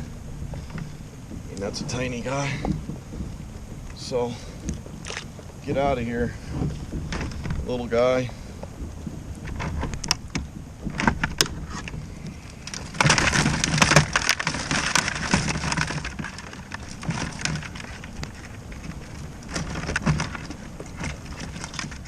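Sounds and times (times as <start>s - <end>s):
dense rush of noise: 0.0s - 22.0s
sharp clicks and knocks: 8.5s - 22.0s.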